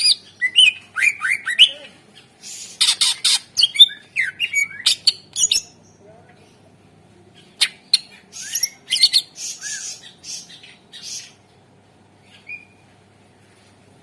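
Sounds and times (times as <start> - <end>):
bird singing raspy notes: 0.0 - 6.7, 7.4 - 11.4.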